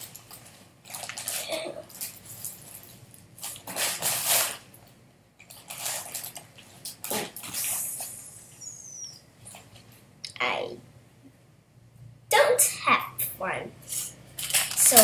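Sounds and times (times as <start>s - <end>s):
rummaging through squishy toys: 0.0s - 4.6s, 5.5s - 7.8s, 14.3s - 15.0s.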